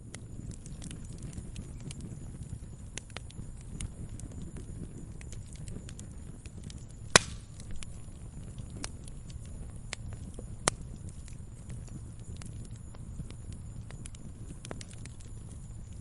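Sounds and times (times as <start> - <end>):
wood fire crackling: 0.0 - 16.0
sharp loud pop: 7.2 - 7.5.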